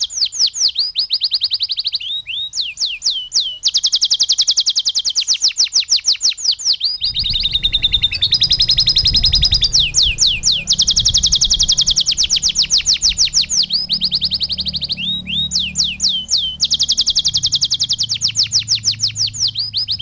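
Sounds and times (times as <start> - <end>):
canary singing rapid trills: 0.0 - 20.0
low rumble: 7.0 - 20.0.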